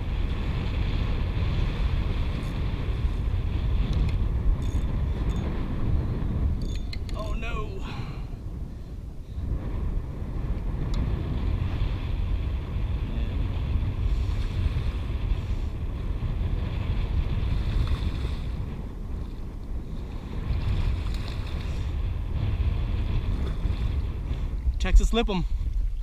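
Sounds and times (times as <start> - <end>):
steady low rumble: 0.0 - 26.0
wind buffeting microphone: 0.0 - 26.0
water washing around boat: 7.2 - 26.0.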